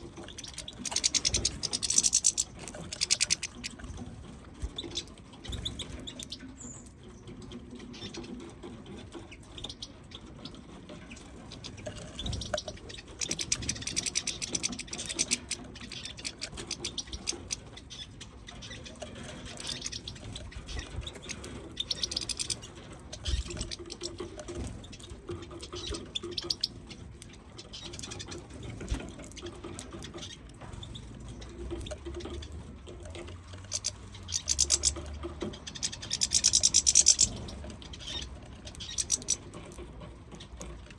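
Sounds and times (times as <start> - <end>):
finches cracking seeds: 0.1 - 3.8.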